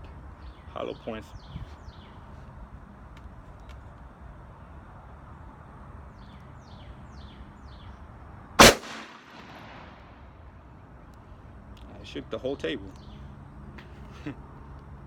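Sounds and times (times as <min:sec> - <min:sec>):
revolver gunshot with echo: 0:08.6 - 0:10.2.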